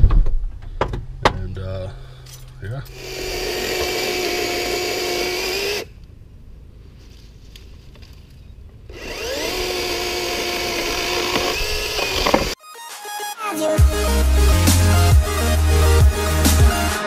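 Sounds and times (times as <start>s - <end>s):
electric chainsaw cutting wood: 2.9s - 5.9s, 8.9s - 12.6s.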